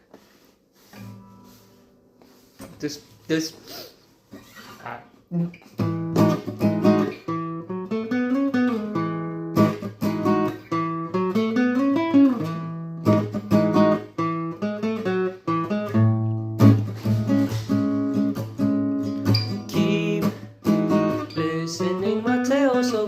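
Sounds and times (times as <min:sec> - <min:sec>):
acoustic guitar chords: 0:05.3 - 0:23.0.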